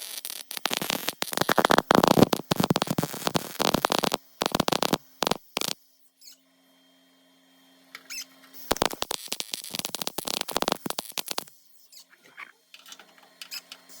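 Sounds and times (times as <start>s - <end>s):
welding arc crackling: 0.0s - 5.8s, 8.6s - 11.8s
faint steady hum: 0.0s - 12.8s.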